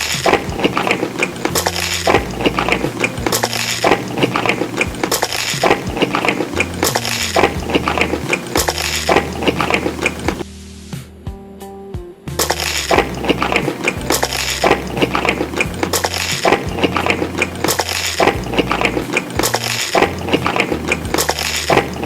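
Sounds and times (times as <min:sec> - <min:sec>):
crunching and clinking while eating: 0:00.0 - 0:10.4, 0:12.4 - 0:22.0
quiet background music: 0:00.0 - 0:22.0.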